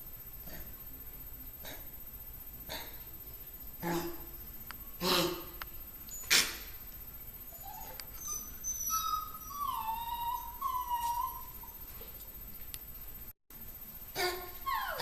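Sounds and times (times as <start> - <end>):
puppy whining: 7.4 - 12.3, 14.2 - 15.0.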